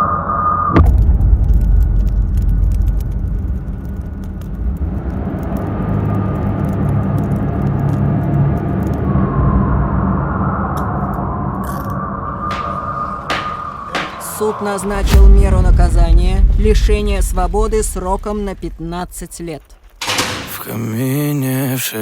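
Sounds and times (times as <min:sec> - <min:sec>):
motor vehicle rumbling: 0:01.0 - 0:20.5
crackling clicks: 0:01.4 - 0:09.1, 0:17.4 - 0:20.6.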